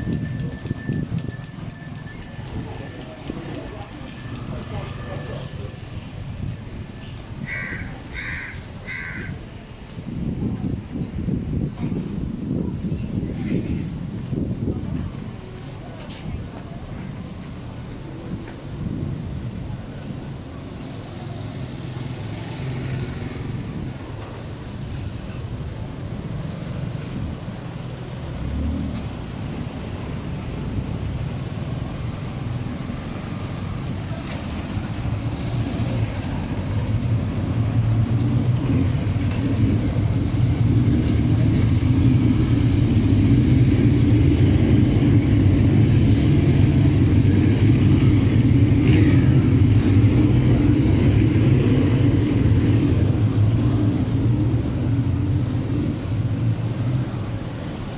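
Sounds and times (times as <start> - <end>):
street noise: 0.0 - 57.9
vehicle engine humming: 25.0 - 57.9.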